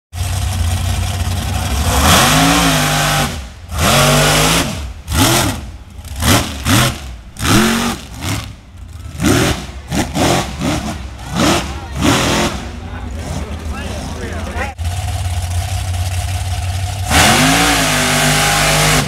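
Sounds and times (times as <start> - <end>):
truck engine revving: 0.1 - 19.0.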